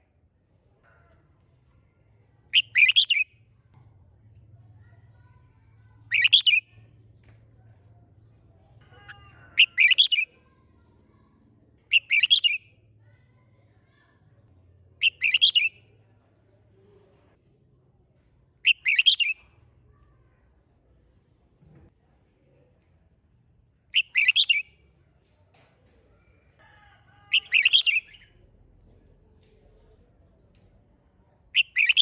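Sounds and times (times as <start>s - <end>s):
bulbul singing: 1.6s - 4.1s, 5.7s - 7.9s, 9.6s - 10.3s, 11.9s - 12.8s, 14.6s - 16.4s, 18.6s - 19.8s, 23.9s - 24.8s, 27.2s - 28.4s, 31.5s - 32.0s.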